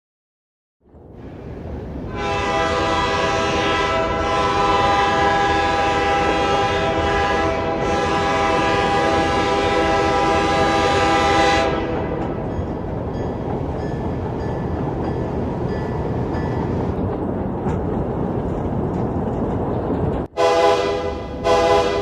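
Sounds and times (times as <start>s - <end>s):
passing train rumble: 0.8s - 22.0s
train horn blowing: 2.1s - 12.4s, 20.4s - 22.0s.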